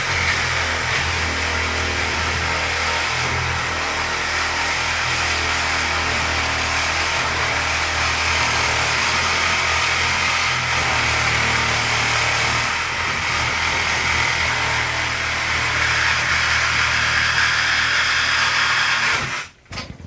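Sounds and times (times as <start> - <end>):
power saw cutting metal: 0.0 - 19.6.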